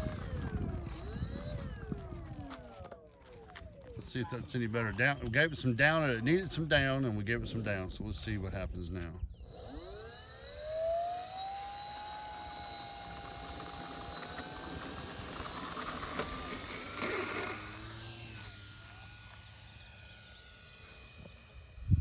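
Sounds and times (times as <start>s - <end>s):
model plane motor whining: 0.0s - 4.2s, 9.2s - 22.0s.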